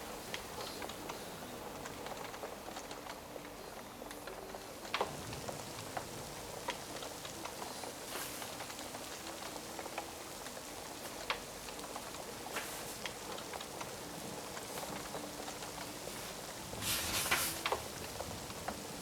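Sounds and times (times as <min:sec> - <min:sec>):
rain: 0:00.0 - 0:19.0
wood fire crackling and popping: 0:00.0 - 0:19.0.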